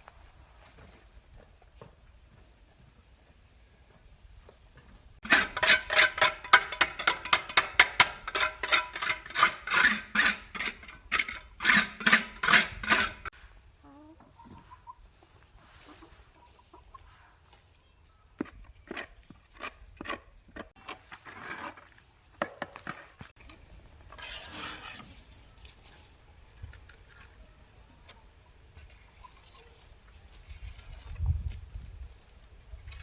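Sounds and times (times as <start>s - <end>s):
chicken cackling: 13.8s - 17.3s.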